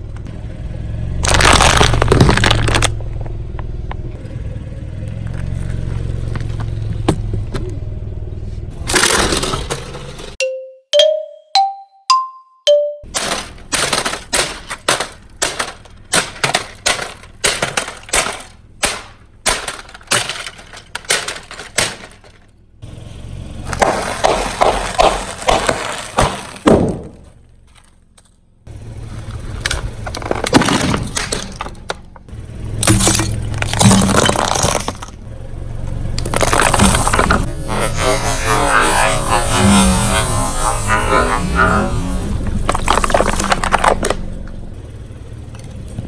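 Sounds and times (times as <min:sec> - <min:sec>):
objects cracking under a car tyre: 0:01.2 - 0:04.2, 0:05.1 - 0:07.8, 0:13.1 - 0:22.7, 0:23.6 - 0:35.3, 0:35.9 - 0:44.8.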